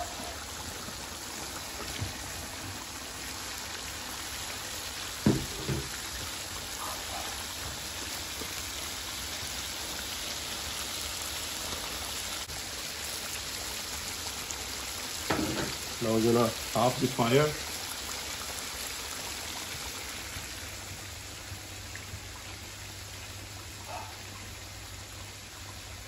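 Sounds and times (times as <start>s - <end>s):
food sizzling in a wok: 0.0s - 26.0s
knock against a wok: 5.2s - 6.0s, 15.3s - 15.8s.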